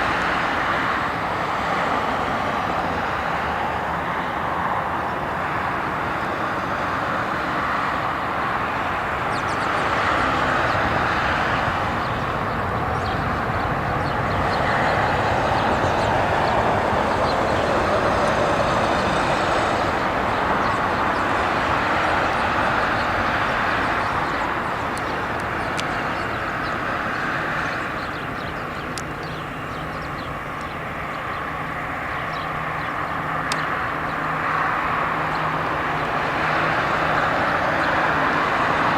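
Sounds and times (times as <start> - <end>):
jet engines rushing: 0.0 - 38.9
faint clicks: 28.9 - 29.1, 33.4 - 33.7.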